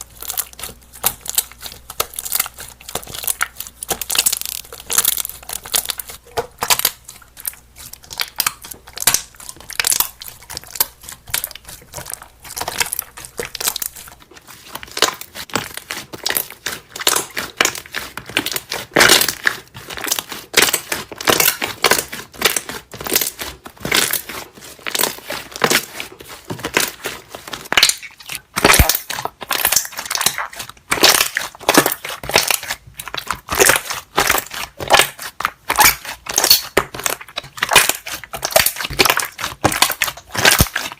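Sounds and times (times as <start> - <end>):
slime squishing: 0.0 - 40.9.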